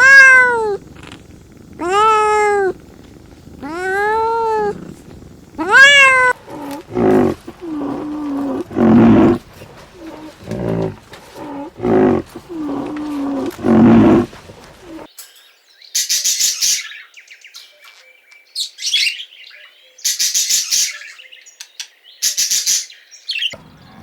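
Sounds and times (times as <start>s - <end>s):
high-pitched animal cries: 0.0s - 0.8s, 1.8s - 2.8s, 3.6s - 4.8s, 5.6s - 9.4s
short rough animal calls: 0.0s - 15.1s.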